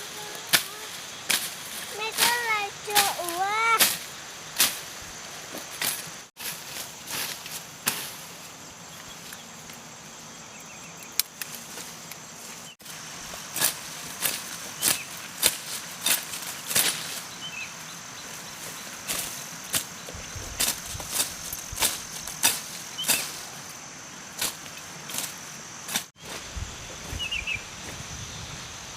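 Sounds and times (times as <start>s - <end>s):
high insect drone: 0.0s - 28.9s.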